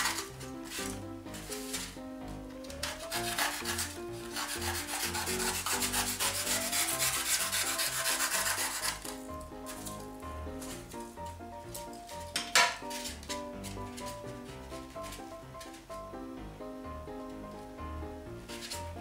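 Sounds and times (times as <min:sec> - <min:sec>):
background music with melody: 0:00.0 - 0:19.0
craft knife sawing through foam: 0:02.8 - 0:09.1.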